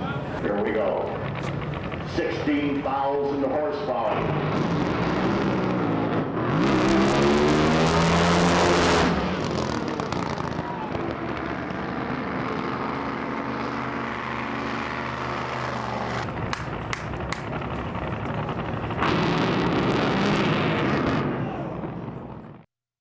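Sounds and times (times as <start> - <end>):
racing boat engine revving: 0.0 - 22.6
engine pops: 0.4 - 5.5, 10.0 - 21.2.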